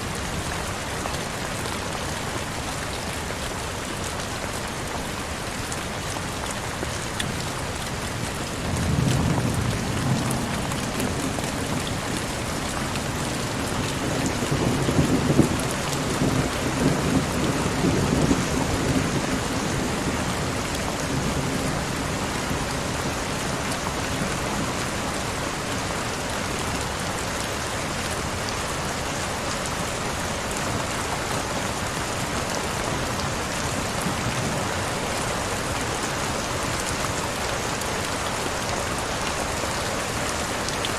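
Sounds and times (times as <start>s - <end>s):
heavy rain: 0.0s - 40.9s
low rumble of thunder: 8.6s - 23.0s.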